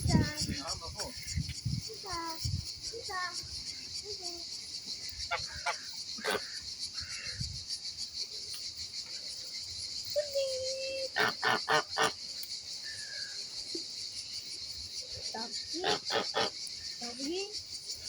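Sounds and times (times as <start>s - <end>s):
steady high-pitched hiss: 0.0s - 18.0s
waterfowl calling: 5.2s - 7.3s, 11.1s - 12.2s, 15.8s - 16.7s.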